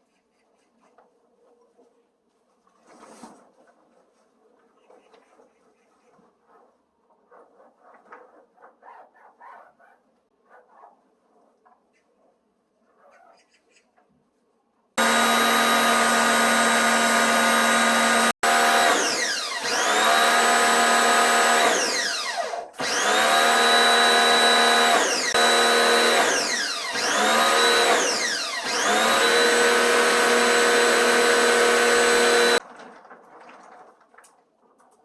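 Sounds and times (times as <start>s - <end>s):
small electric motor running: 15.0s - 32.6s.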